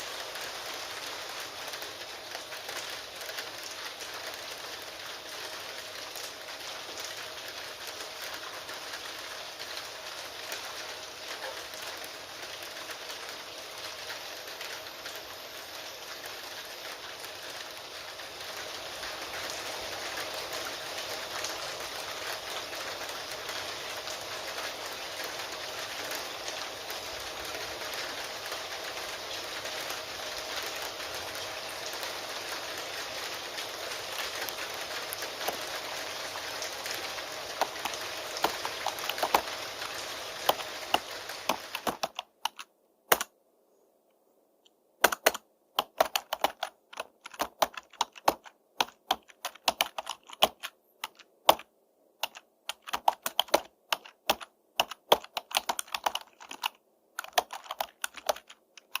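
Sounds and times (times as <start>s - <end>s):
steady rain: 0.0s - 43.4s, 44.7s - 59.0s
computer keyboard typing: 34.1s - 35.9s, 36.8s - 43.3s, 45.0s - 59.0s.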